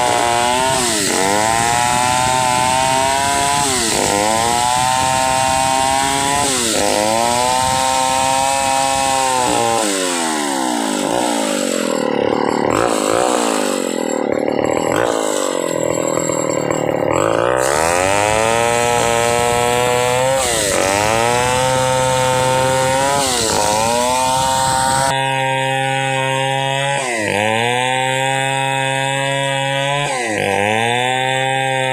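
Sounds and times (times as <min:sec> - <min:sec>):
chainsaw cutting wood: 0:00.0 - 0:31.9.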